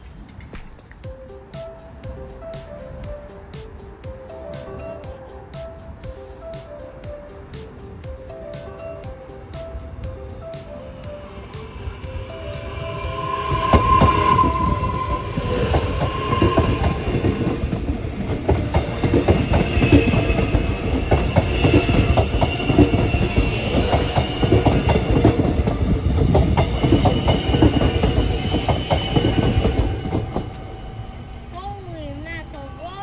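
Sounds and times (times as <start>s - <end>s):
train wheels rumbling over rails: 0.0s - 33.0s
steady high whine: 8.1s - 33.0s.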